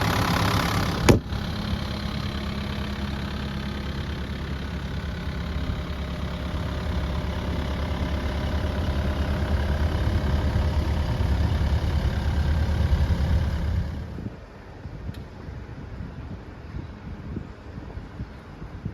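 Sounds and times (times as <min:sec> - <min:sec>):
excavator diesel engine idling: 0:00.0 - 0:14.4.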